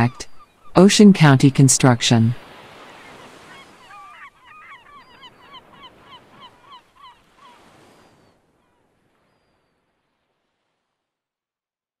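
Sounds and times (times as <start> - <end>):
bird calling: 2.7 - 8.4.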